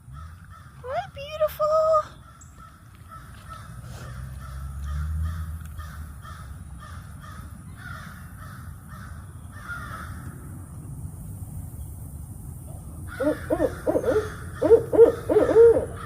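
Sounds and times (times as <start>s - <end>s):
bird giving harsh caw-like calls: 2.2s - 10.2s, 13.1s - 16.0s.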